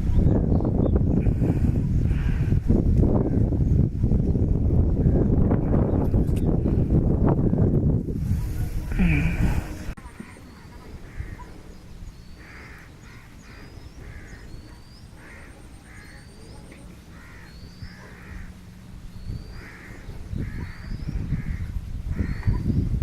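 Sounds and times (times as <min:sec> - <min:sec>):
crows cawing: 0:11.0 - 0:11.5, 0:12.3 - 0:16.3, 0:17.1 - 0:18.7, 0:19.5 - 0:22.6.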